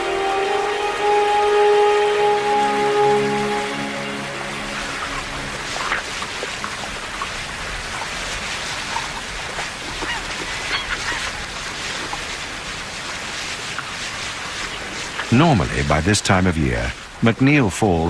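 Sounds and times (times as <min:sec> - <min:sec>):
river water rushing: 0:00.0 - 0:17.7.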